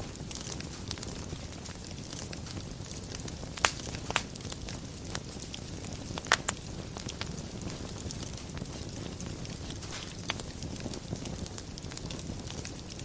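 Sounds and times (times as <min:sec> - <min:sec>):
wood fire crackling: 0:00.0 - 0:13.0
sharp pops: 0:09.8 - 0:10.4.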